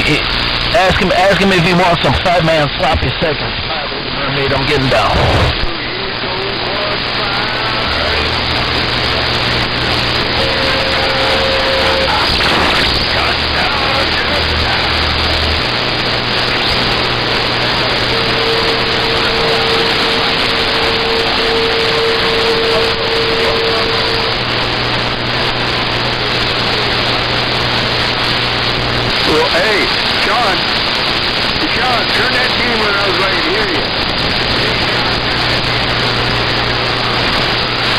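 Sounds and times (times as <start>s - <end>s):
radio static hiss: 0.0s - 37.9s
faint carrier tone whistle: 8.2s - 27.3s.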